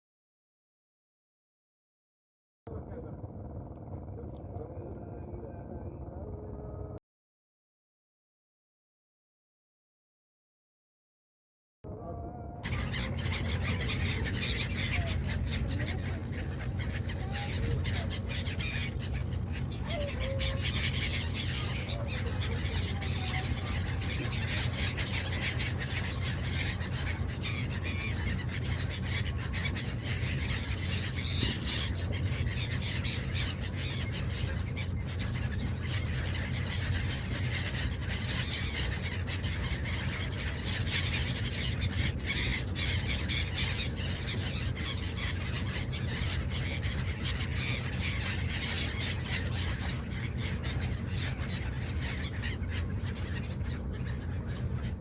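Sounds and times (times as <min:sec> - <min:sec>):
boat engine drone: 0:02.7 - 0:07.0, 0:11.9 - 0:55.0
seagulls squawking: 0:12.6 - 0:55.0.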